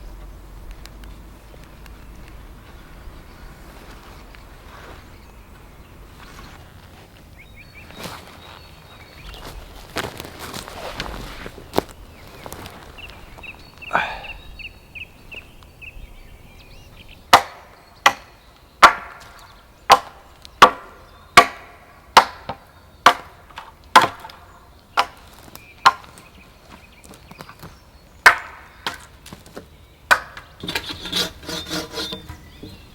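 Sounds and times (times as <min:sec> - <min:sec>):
wood being chopped: 0:17.3 - 0:26.3, 0:27.1 - 0:32.9.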